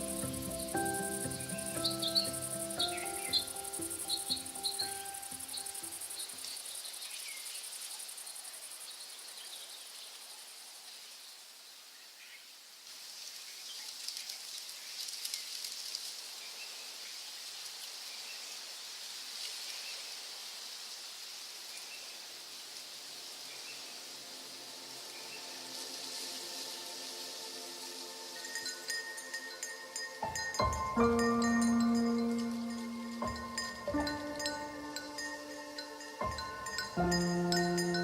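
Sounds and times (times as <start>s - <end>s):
background music: 0.0s - 6.4s, 24.3s - 38.0s
faint bird chirps: 0.0s - 12.5s
insects chirring: 0.0s - 38.0s
low steady hiss: 0.0s - 38.0s.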